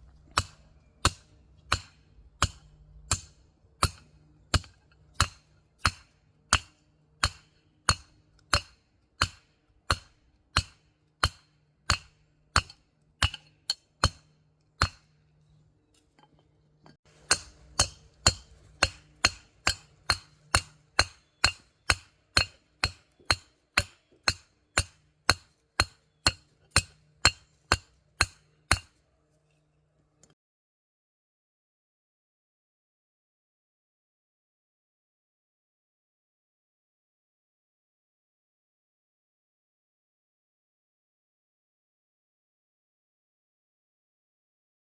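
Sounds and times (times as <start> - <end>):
hammer striking hot metal: 0.3 - 15.1, 17.1 - 29.0.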